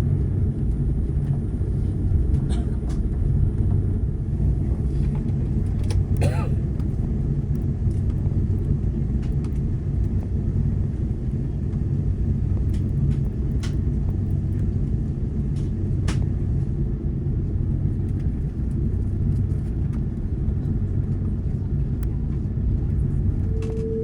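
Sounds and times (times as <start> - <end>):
airliner cabin low rumble: 0.0 - 24.0
jet engines humming: 22.9 - 24.0.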